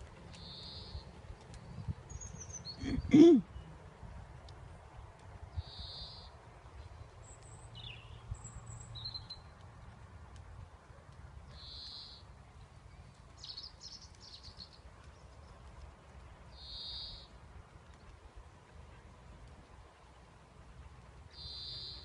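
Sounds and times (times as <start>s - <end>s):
birds calling: 21.3s - 22.0s.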